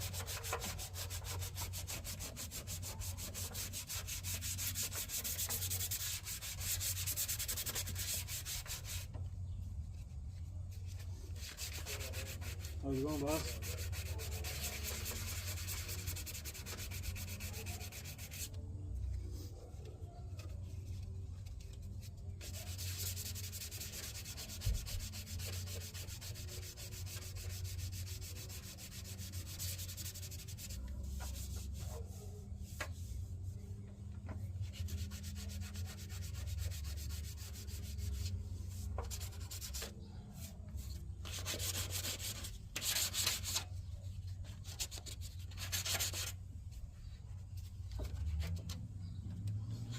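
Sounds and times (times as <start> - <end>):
sanding scratchy rubbing: 0.0 - 9.2, 10.8 - 18.6, 22.1 - 33.8, 34.4 - 43.7, 44.6 - 46.4.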